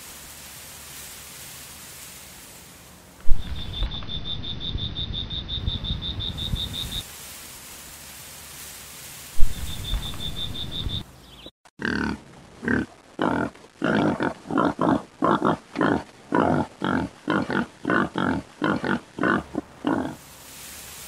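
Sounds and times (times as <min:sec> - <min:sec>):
insect chirping: 0:03.2 - 0:07.1, 0:09.4 - 0:11.1
animal grunting: 0:11.8 - 0:20.2.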